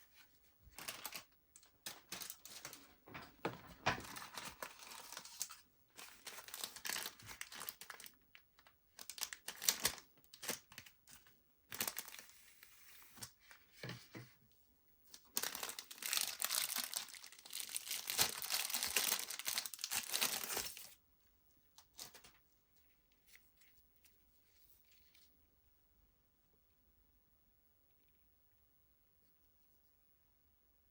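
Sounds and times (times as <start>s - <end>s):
packaging crinkling and rustling: 0.7s - 13.9s, 15.1s - 21.0s, 21.8s - 25.3s.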